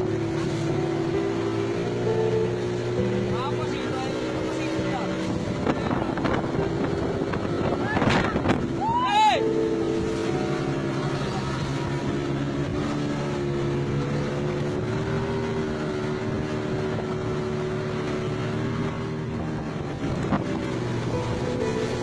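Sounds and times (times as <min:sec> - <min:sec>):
boat engine running: 0:00.0 - 0:22.0
wind on microphone: 0:04.9 - 0:09.1, 0:09.7 - 0:22.0.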